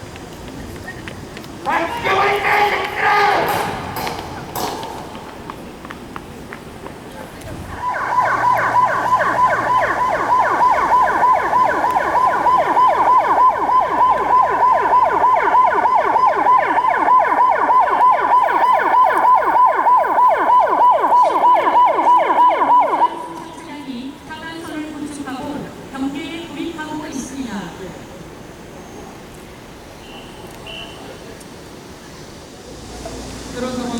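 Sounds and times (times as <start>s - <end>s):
rapid electronic siren: 7.8s - 23.3s.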